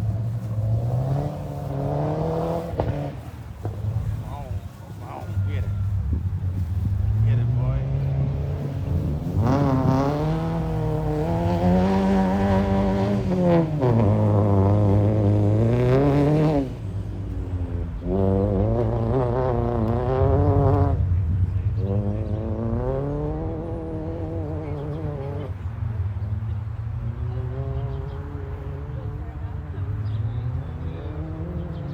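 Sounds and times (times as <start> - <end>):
turbocharged car engine accelerating: 0.0 - 4.7, 5.6 - 31.9.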